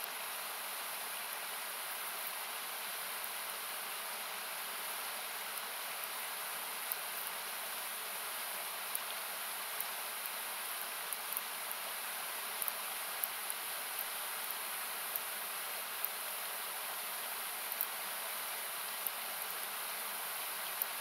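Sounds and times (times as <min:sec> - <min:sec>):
campfire crackling: 0:08.6 - 0:21.0.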